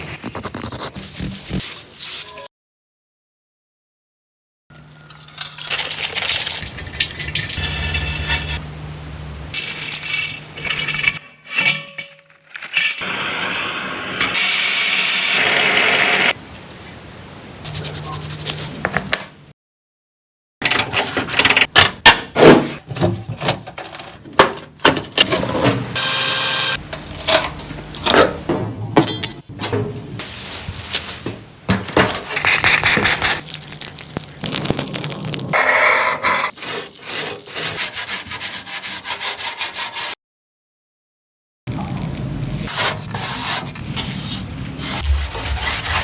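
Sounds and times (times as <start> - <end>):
tools scraping and rattling: 9.6 - 13.0.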